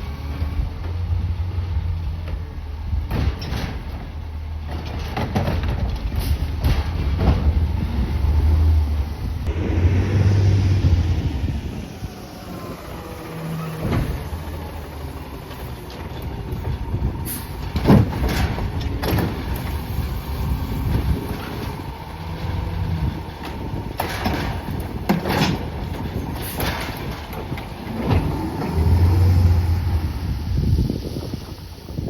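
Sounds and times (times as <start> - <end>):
engine and hydraulics drone: 0.0 - 32.0
garbage truck engine running: 0.0 - 32.0
metallic clanks and bangs: 3.0 - 8.0, 15.9 - 20.1, 20.8 - 29.4.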